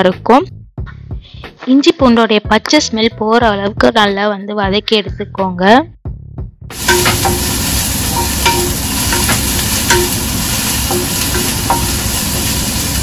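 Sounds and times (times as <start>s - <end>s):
paste sizzling in a pot: 6.7s - 13.0s
spatula knocking against pot: 6.8s - 12.4s.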